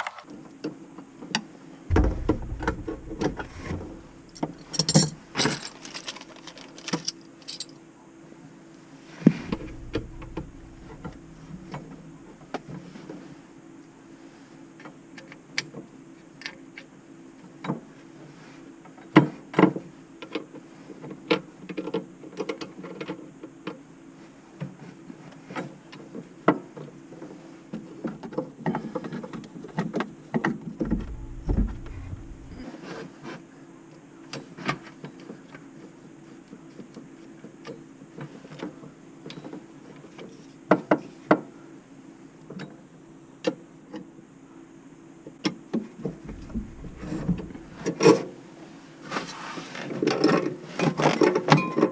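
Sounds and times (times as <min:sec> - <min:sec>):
irregular clicks and knocks: 0:00.0 - 0:00.2, 0:01.9 - 0:05.7, 0:09.4 - 0:12.0, 0:30.8 - 0:32.6, 0:46.3 - 0:47.9
short low rumble: 0:01.9 - 0:05.5, 0:09.3 - 0:12.4, 0:30.8 - 0:32.6, 0:46.2 - 0:47.9
steady low hum: 0:01.9 - 0:05.7, 0:09.3 - 0:12.6, 0:30.8 - 0:32.6, 0:46.2 - 0:48.0.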